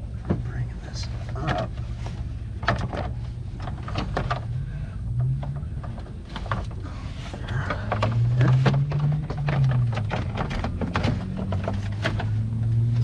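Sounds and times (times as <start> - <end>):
steady low hum: 0.0 - 13.0
plastic and metal knocking: 2.6 - 4.5, 7.4 - 12.4.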